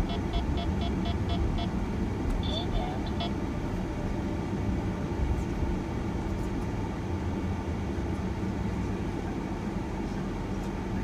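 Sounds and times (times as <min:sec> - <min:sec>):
van engine and road noise: 0:00.0 - 0:11.0.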